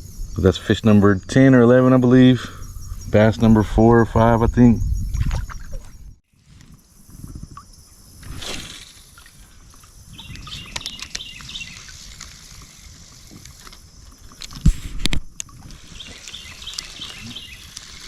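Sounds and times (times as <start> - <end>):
birds chirping faintly: 15.6 - 18.0.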